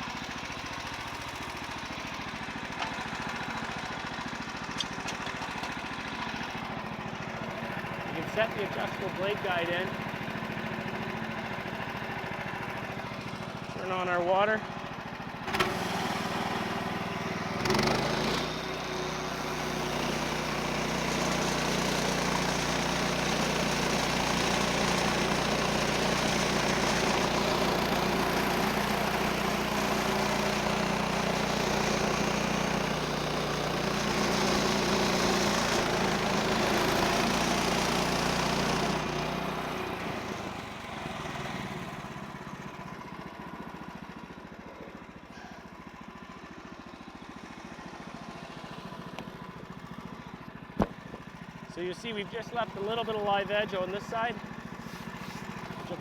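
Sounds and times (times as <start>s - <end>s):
engine idling: 0.0s - 56.0s
sawmill engine at full throttle: 0.0s - 56.0s
band blade cutting log: 50.8s - 51.3s.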